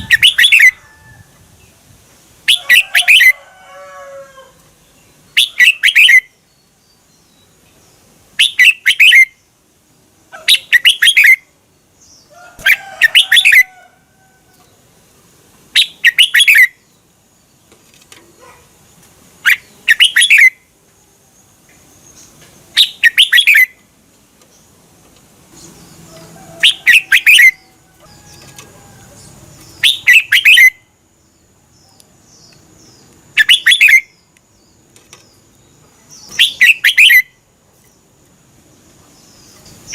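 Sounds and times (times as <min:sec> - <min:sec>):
bulbul singing: 0:00.0 - 0:00.8, 0:05.0 - 0:07.7, 0:08.4 - 0:09.6, 0:10.4 - 0:13.8, 0:15.7 - 0:17.6, 0:19.4 - 0:20.7, 0:21.4 - 0:23.8, 0:25.5 - 0:37.5
faint bird chirping: 0:14.5 - 0:39.9.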